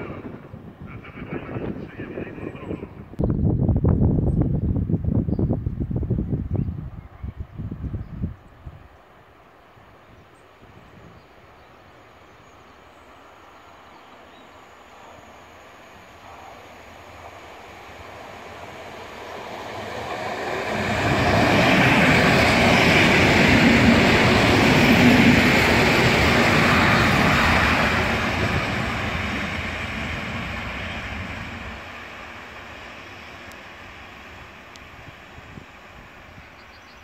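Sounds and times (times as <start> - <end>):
train wheels rumbling on rail: 16.2 - 37.0.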